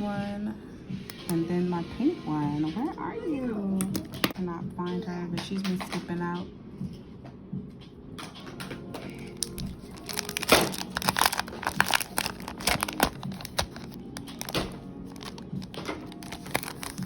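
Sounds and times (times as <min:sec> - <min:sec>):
packaging crinkling: 0:09.1 - 0:17.0.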